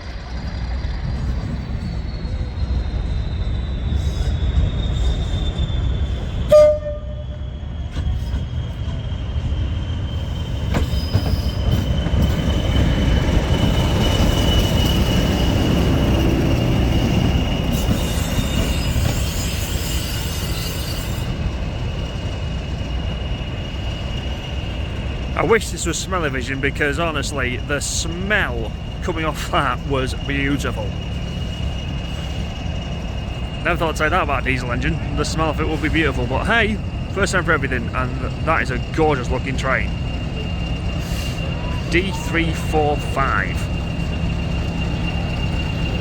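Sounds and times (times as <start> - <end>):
diesel locomotive engine rumble: 0.0 - 46.0
high thin whistle: 3.1 - 9.0
train horn toot: 6.5 - 7.4.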